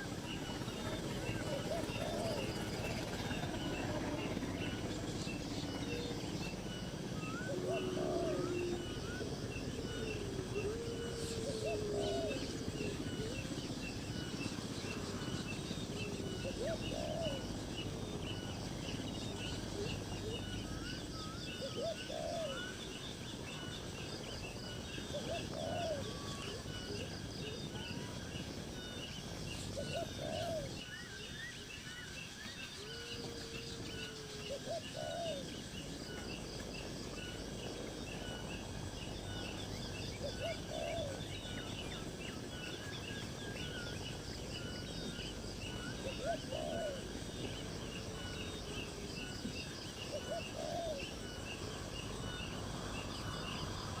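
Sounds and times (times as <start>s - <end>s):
long low gliding bird calls: 0.0s - 54.0s
low arched bird call: 7.2s - 13.4s.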